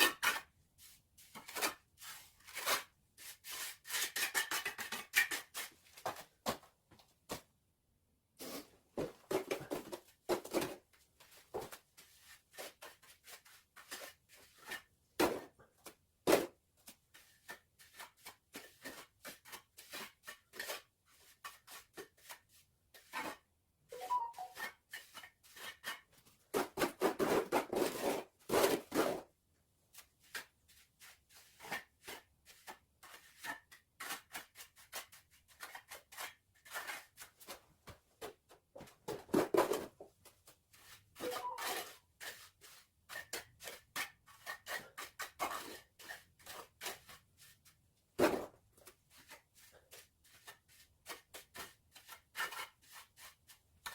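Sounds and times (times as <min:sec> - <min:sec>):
trowel scraping mortar: 0:01.4 - 0:05.8, 0:31.4 - 0:37.6, 0:40.9 - 0:47.6.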